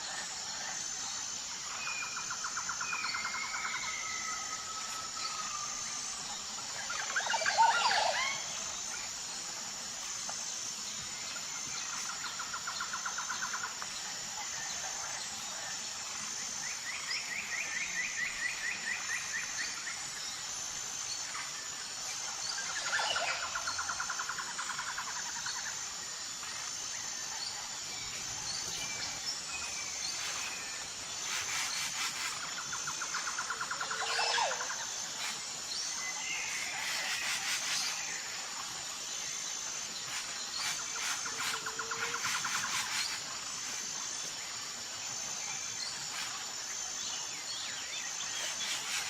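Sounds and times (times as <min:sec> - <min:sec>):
high-pitched insect drone: 0:00.0 - 0:49.0
bird rapid trills: 0:27.5 - 0:38.6, 0:39.9 - 0:43.8, 0:45.8 - 0:46.5, 0:47.8 - 0:49.0.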